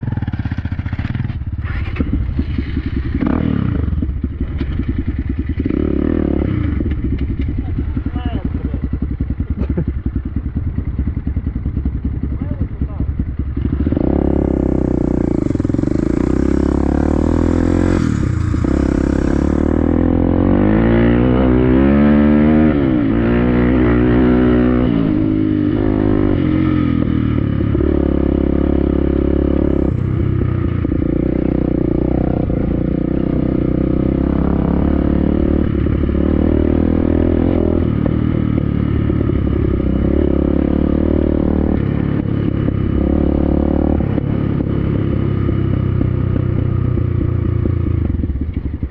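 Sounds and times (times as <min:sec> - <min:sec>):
dirt bike engine revving: 0:00.1 - 0:10.2, 0:13.5 - 0:48.1.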